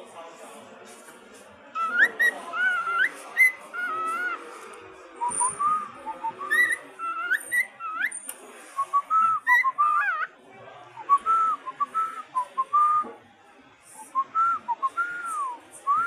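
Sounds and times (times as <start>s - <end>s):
cockatiel whistling: 1.8s - 4.4s, 5.2s - 8.2s, 8.9s - 10.3s.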